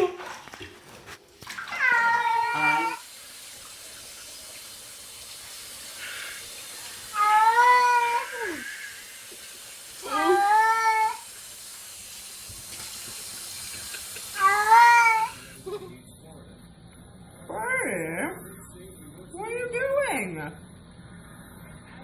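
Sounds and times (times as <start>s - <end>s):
cat meowing: 1.7s - 3.0s, 14.4s - 15.4s
faint steady hiss: 2.3s - 15.9s.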